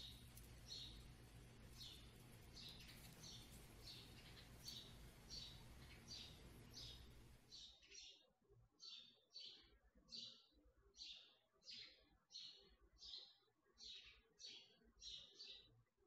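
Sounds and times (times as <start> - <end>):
low steady hum: 0.0 - 7.6
small bird chirping: 0.0 - 15.7.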